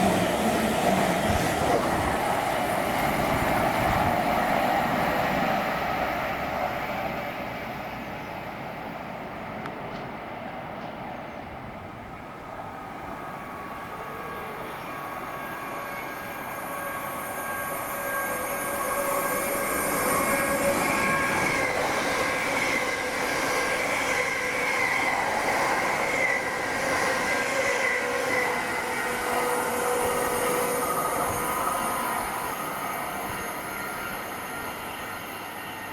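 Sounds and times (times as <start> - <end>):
train running through station: 0.0 - 35.9.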